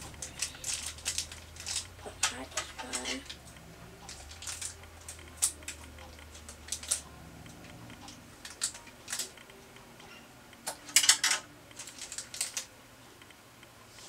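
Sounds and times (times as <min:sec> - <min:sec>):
plastic crinkling: 0:00.0 - 0:03.4, 0:04.0 - 0:07.0, 0:08.4 - 0:09.4, 0:10.7 - 0:12.7
scissors snipping plastic: 0:00.0 - 0:03.4, 0:04.0 - 0:07.0, 0:08.0 - 0:09.4, 0:10.6 - 0:12.7.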